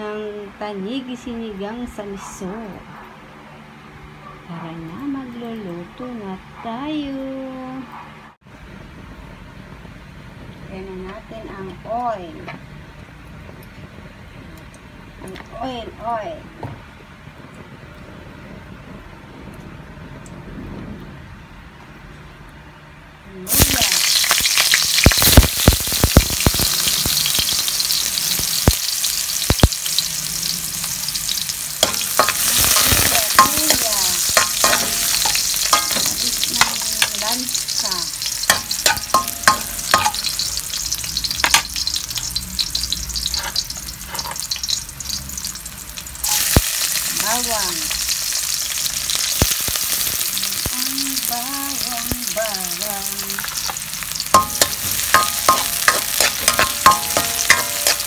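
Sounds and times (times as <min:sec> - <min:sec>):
garlic frying in hot oil: 0:23.3 - 0:58.0.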